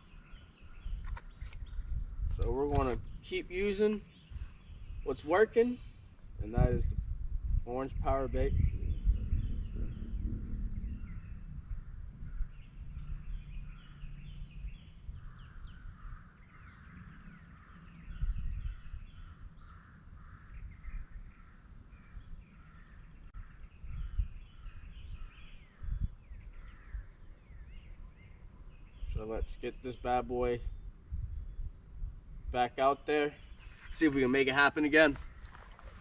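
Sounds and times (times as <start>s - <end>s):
small birds chirping and singing: 0.0s - 7.0s, 7.7s - 36.0s.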